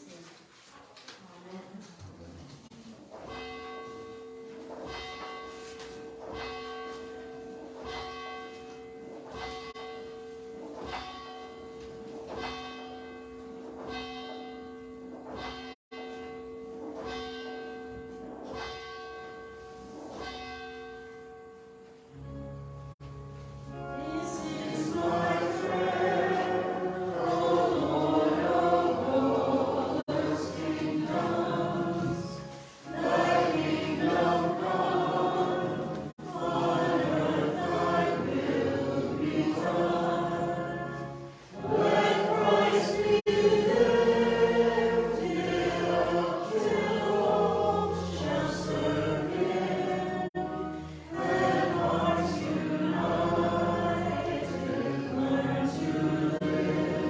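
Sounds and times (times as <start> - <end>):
choir singing a hymn: 23.7 - 57.0.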